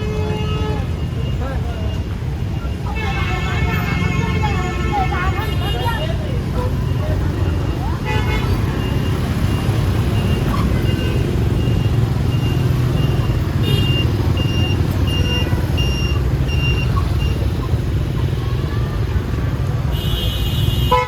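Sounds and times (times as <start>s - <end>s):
vehicle engine rumble: 0.0s - 20.9s
traffic: 0.0s - 21.0s
electronic warning beeps: 8.8s - 17.6s.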